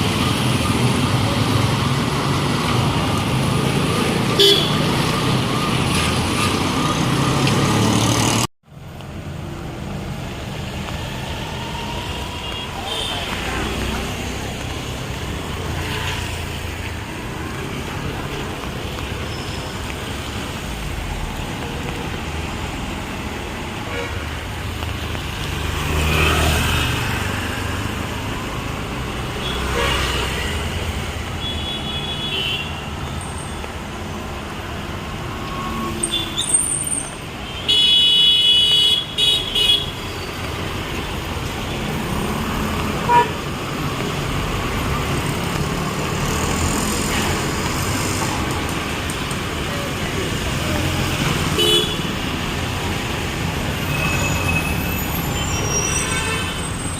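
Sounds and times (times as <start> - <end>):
street traffic passing: 0.0 - 56.9
vehicle horns honking: 4.4 - 4.9, 43.0 - 43.4, 51.6 - 52.1.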